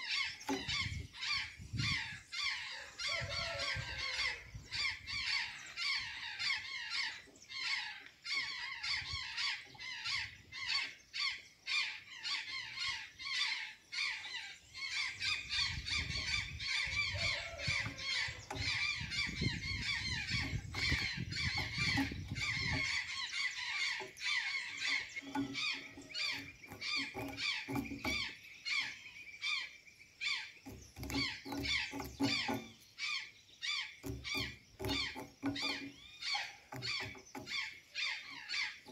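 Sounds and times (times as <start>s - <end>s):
jays squawking and chattering: 0.0s - 38.9s.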